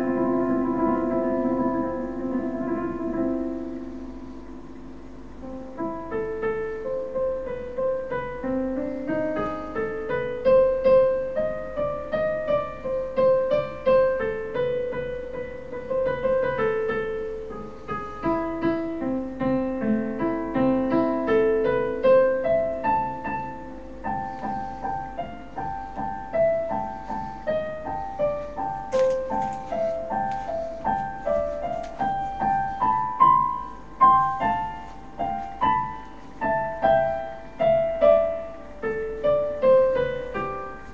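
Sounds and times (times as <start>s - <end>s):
piano melody: 0.0s - 40.9s.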